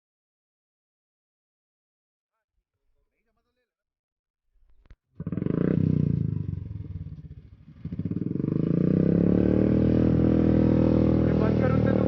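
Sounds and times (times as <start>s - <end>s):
motorcycle engine running: 5.2s - 12.0s.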